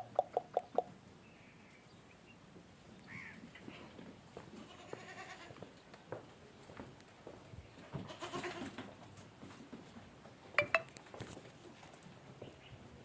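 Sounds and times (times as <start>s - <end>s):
goats bleating: 4.6s - 5.5s, 8.1s - 8.7s.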